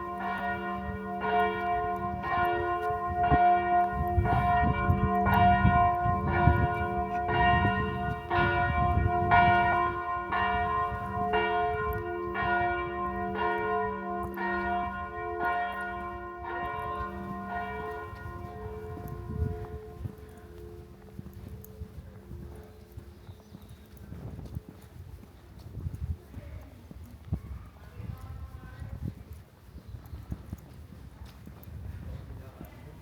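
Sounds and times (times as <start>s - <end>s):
church bell ringing: 0.0s - 23.2s.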